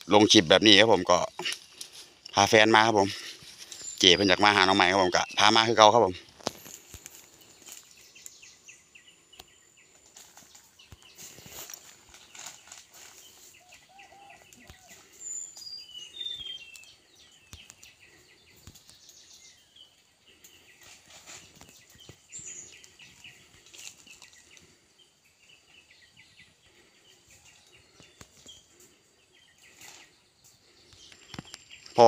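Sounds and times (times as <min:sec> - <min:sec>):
small birds chirping: 0:00.0 - 0:32.0
dry leaves crackling: 0:10.0 - 0:15.2, 0:20.8 - 0:24.8.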